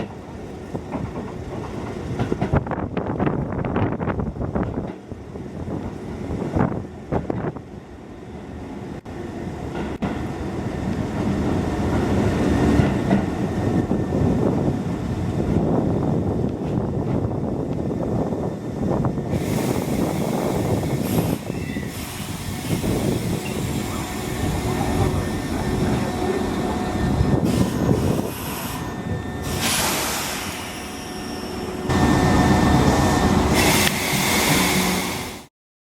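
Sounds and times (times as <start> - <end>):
rail-joint clatter: 0.0 - 3.4, 10.9 - 13.4
electric train running noise: 15.6 - 35.5
short bursts of hiss: 29.5 - 30.8, 33.6 - 35.5.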